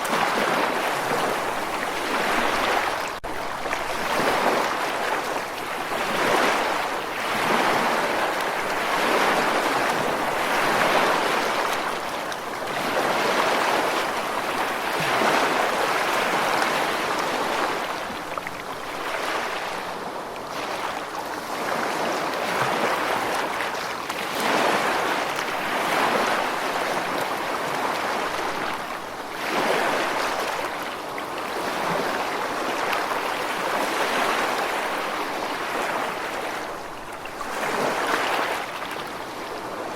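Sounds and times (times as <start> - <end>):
ocean waves washing on shore: 0.0 - 39.9.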